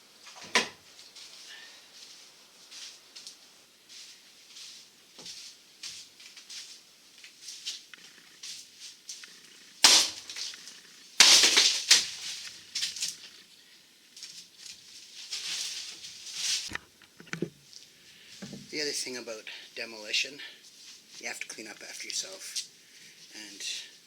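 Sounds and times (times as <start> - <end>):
wood cracking and scraping: 9.2 - 13.4
loud sharp cracks: 9.8 - 10.6, 11.2 - 12.5.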